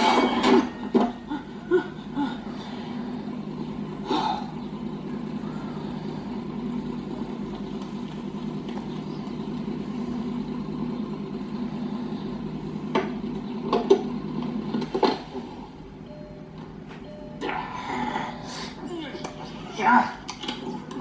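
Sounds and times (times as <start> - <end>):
cartoon car engine running: 0.0 - 21.0
sharp clanks and knocks: 12.9 - 15.4.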